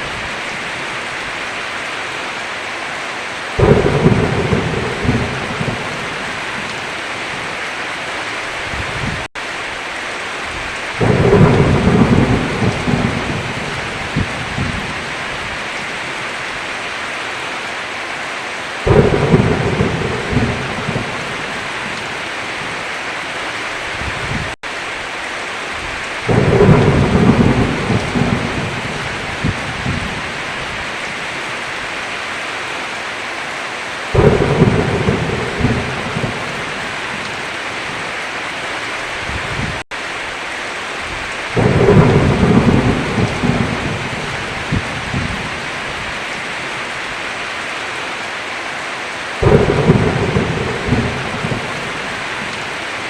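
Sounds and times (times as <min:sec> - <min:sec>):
heavy rain: 0:00.0 - 0:53.0
thunder rumbling: 0:03.6 - 0:07.5, 0:10.5 - 0:15.9, 0:18.8 - 0:22.8, 0:25.8 - 0:31.2, 0:34.1 - 0:38.0, 0:41.0 - 0:46.3, 0:49.4 - 0:53.0.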